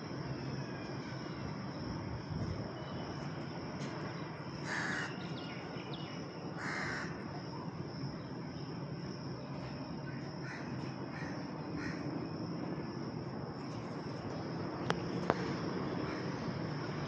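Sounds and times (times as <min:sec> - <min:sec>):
crow cawing: 0:04.6 - 0:05.2, 0:06.6 - 0:07.2, 0:10.4 - 0:12.0.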